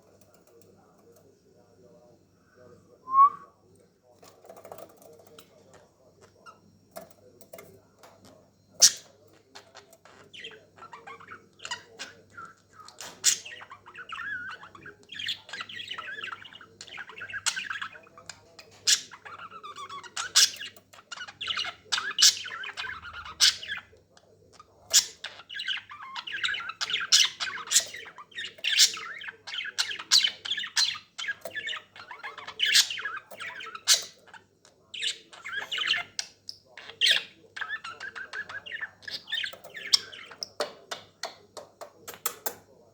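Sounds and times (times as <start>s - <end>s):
budgerigar chirps and squawks: 8.8s - 9.1s, 18.8s - 23.9s, 24.8s - 34.4s.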